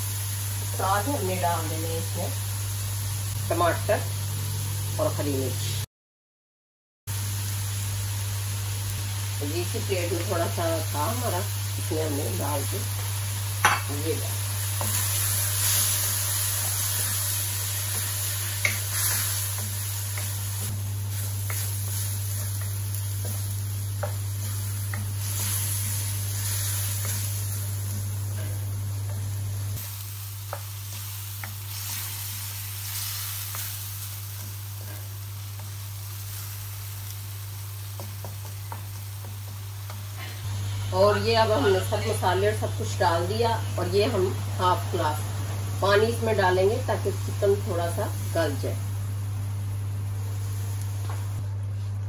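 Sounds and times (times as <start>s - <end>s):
food sizzling in a wok: 0.0s - 5.9s, 7.1s - 52.0s
wooden spoon scraping a pan: 14.7s - 20.4s.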